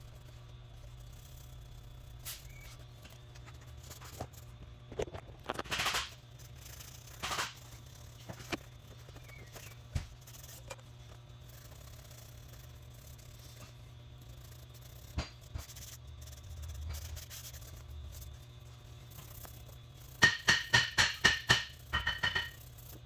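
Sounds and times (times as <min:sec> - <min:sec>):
steady low hum: 0:00.0 - 0:23.0
tools clicking and tapping: 0:20.1 - 0:23.0.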